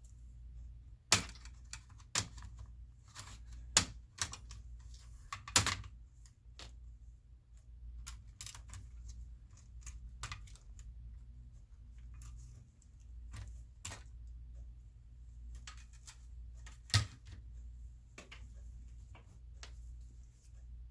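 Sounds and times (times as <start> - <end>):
low steady hum: 0.0 - 20.9
laptop parts clicking and tapping: 1.1 - 6.0, 8.0 - 10.8.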